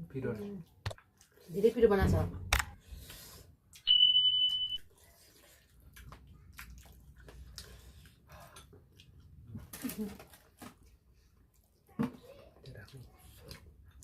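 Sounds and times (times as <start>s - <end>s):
high-pitched beep: 3.9s - 4.9s
wet chewing and gnawing: 4.9s - 14.0s.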